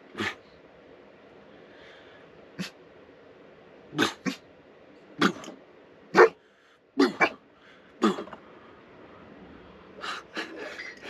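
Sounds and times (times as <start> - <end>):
dog barking: 6.1 - 6.4.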